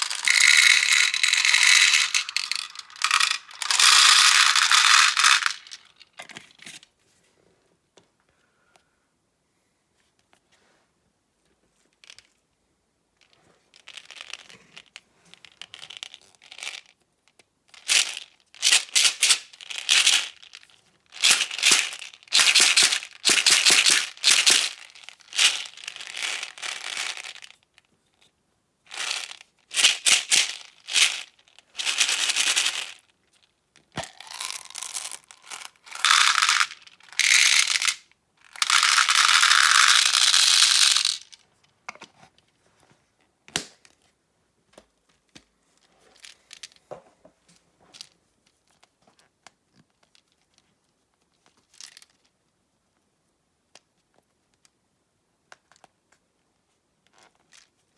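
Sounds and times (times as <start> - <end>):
objects clicking: 0.0 - 6.0, 34.0 - 38.0, 38.6 - 41.3
objects rattling: 0.0 - 6.0, 21.2 - 27.4, 34.0 - 41.3.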